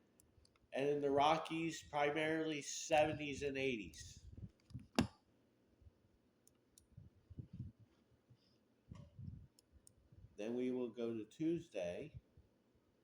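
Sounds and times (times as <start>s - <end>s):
soft low bumps: 7.0s - 7.8s.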